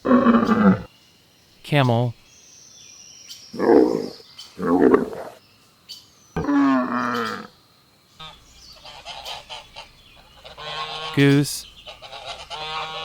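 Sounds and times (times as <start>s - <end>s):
camel growling and bellowing: 0.0s - 0.9s, 3.5s - 5.4s, 6.4s - 7.5s.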